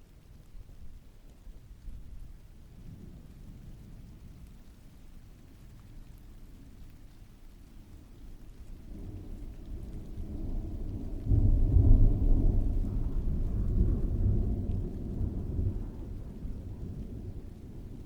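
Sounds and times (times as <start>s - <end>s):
steady rain: 0.0s - 18.0s
thunder rolling: 8.9s - 18.0s.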